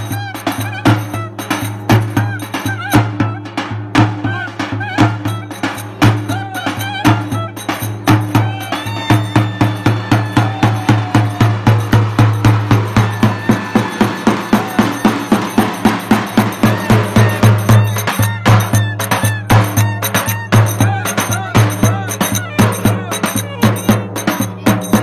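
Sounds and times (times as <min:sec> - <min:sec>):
drum beating fast rhythm: 0:00.0 - 0:25.0
wind instrument warbling melody: 0:00.0 - 0:25.0.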